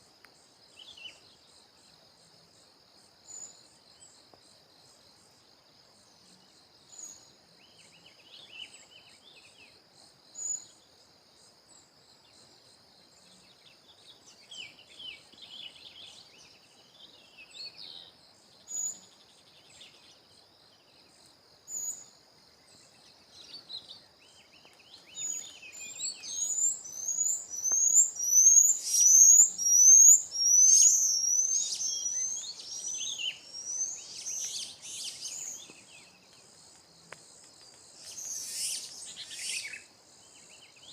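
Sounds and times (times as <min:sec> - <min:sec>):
insect drone: 0:00.0 - 0:40.9
birds chirping: 0:23.4 - 0:36.2.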